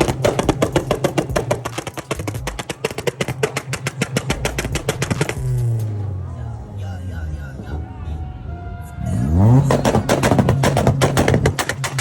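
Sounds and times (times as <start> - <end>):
car exhaust popping: 0.0 - 5.9, 9.5 - 12.0
car engine running smoothly: 9.0 - 12.0.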